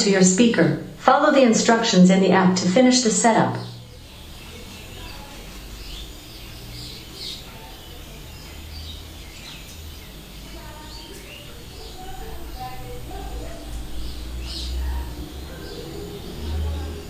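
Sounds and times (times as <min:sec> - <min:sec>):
low room noise rumble: 0:00.0 - 0:17.0
faint bird chirps: 0:03.5 - 0:17.0.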